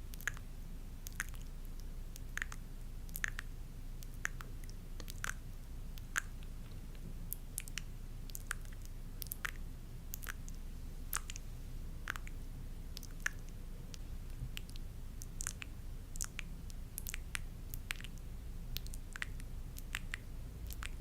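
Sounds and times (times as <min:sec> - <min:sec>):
low steady hum: 0:00.0 - 0:21.0
soft wet clicks and squishes: 0:00.0 - 0:21.0.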